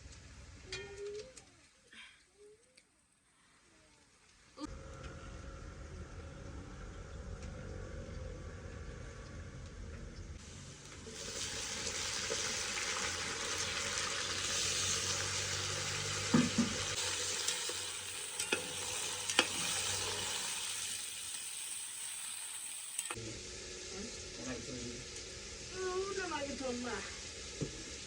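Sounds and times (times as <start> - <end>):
food sizzling in hot oil: 10.4 - 28.0.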